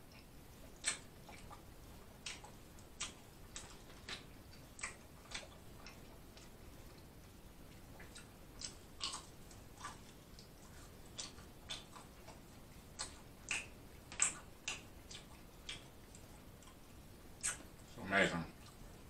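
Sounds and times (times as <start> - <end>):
person chewing and lip-smacking: 0.1 - 7.1, 7.7 - 17.9.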